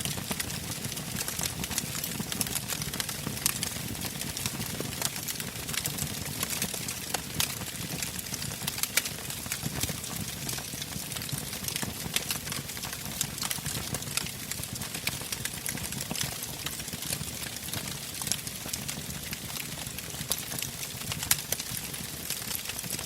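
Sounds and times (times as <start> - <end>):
burning wood popping and snapping: 0.0 - 23.0
low rumble of flames: 0.3 - 9.6.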